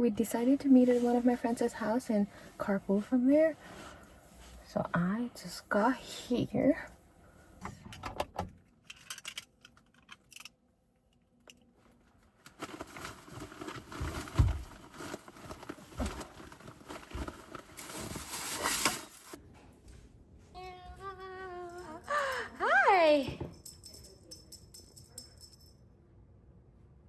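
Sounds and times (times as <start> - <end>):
rustling handling noises: 11.8 - 19.4.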